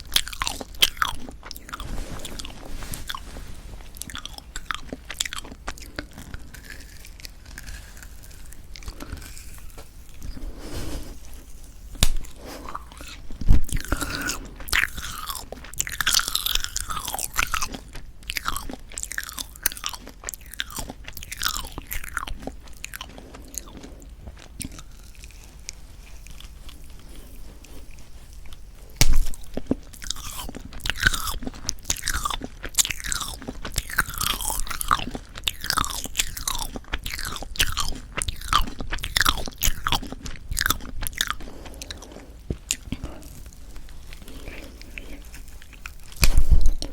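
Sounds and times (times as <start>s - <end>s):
close-miked chewing: 0.0s - 46.9s.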